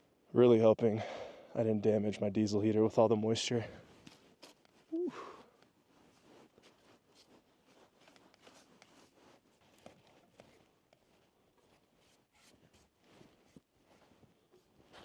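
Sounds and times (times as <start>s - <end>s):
faint rustles: 3.4s - 15.0s.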